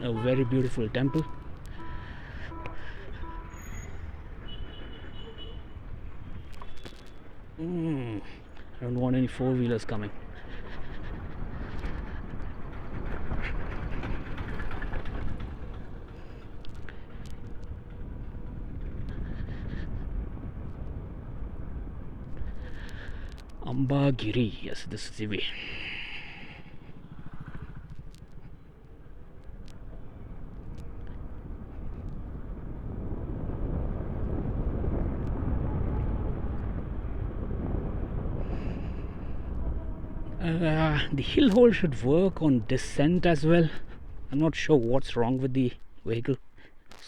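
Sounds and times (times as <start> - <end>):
faint steady tone: 0.0 - 4.2
wind and road noise: 0.0 - 47.0.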